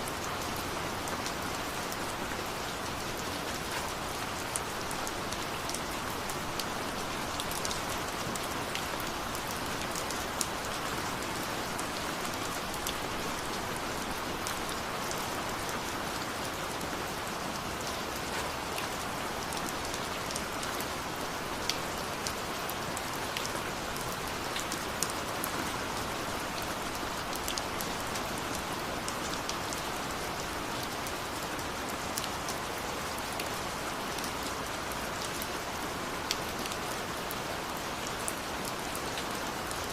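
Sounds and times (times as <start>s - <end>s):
raindrops ticking on a surface: 0.0s - 39.9s.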